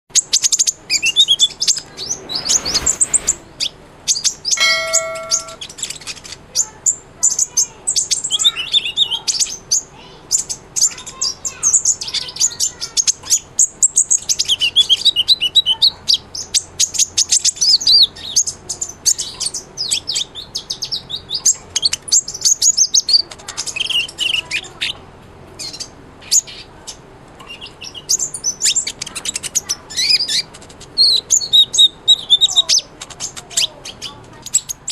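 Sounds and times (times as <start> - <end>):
short chime-like tone: 4.6 - 5.6
bird chirps and trills: 4.6 - 5.8.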